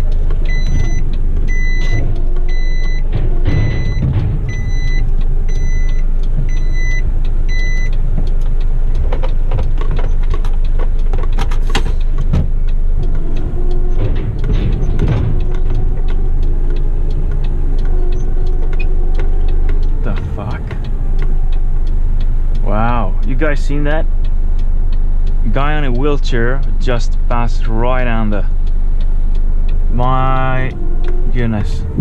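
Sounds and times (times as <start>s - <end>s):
reversing beeper: 0.0s - 8.0s, 29.9s - 32.0s
truck engine running: 0.0s - 32.0s.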